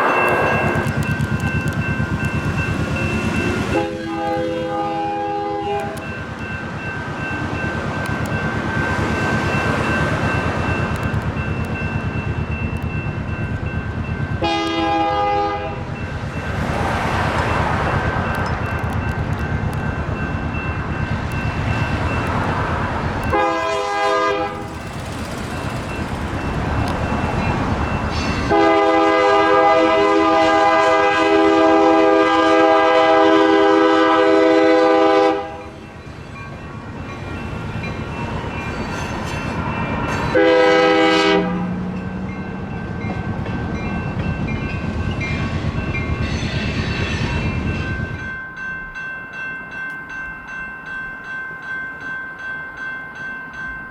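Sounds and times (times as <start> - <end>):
train running rumble: 0.0 - 48.4
train horn blasts: 3.6 - 6.1, 14.4 - 15.9, 23.2 - 24.8, 28.1 - 35.7, 40.3 - 41.9.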